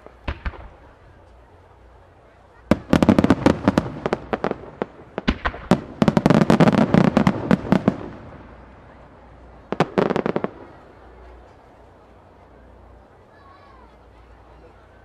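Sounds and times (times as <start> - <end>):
fireworks bursting: 0.0 - 11.5.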